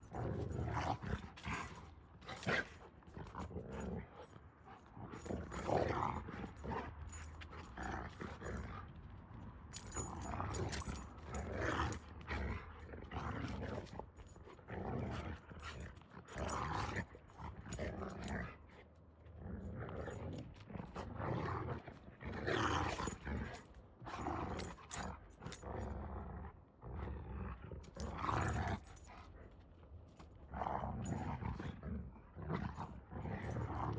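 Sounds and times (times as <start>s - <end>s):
dog growling: 0.0s - 8.9s, 14.7s - 29.5s, 30.5s - 33.9s.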